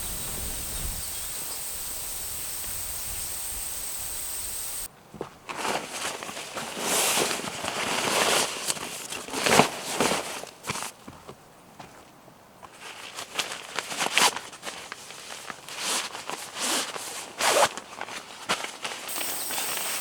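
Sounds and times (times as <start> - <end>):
high whine: 0.0 - 4.9
steady hiss: 0.0 - 4.9, 19.1 - 20.0.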